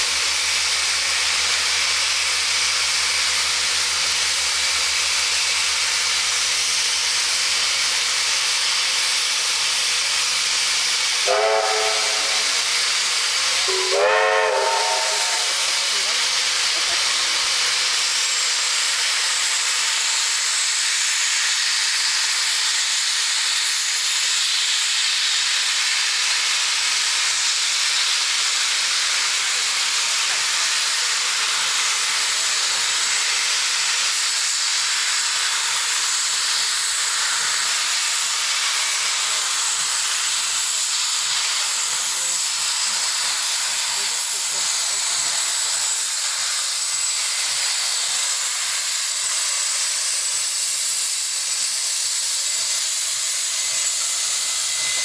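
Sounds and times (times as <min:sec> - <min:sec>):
steam hissing: 0:00.0 - 0:55.0
steam whistle: 0:11.2 - 0:12.9, 0:13.7 - 0:15.9.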